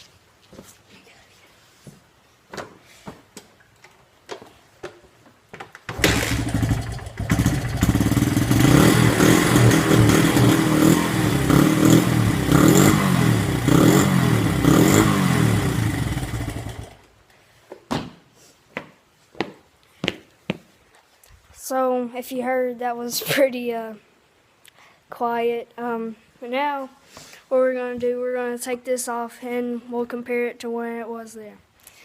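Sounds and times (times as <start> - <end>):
dirt bike engine kick-started: 5.9 - 13.1, 14.0 - 17.1
dirt bike engine revving: 5.9 - 17.0.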